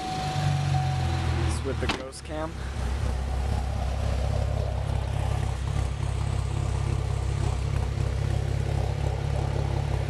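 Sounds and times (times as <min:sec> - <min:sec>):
car engine idling with lope: 0:00.0 - 0:10.0.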